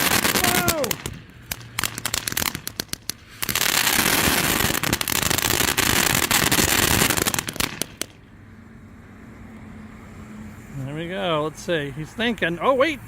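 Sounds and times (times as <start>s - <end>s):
firework crackling hiss: 0.0s - 8.2s
firework sharp pops: 0.0s - 8.2s.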